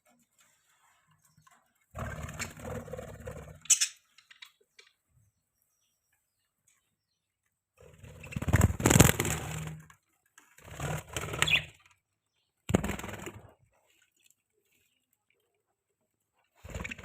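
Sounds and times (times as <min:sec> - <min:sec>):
birds calling: 0:01.2 - 0:07.3, 0:11.3 - 0:13.0.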